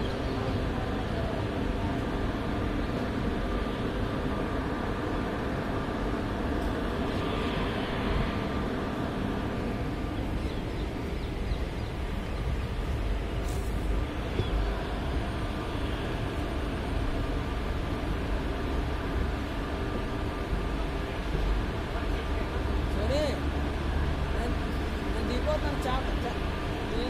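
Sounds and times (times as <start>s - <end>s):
moving train running noise: 0.0s - 27.0s.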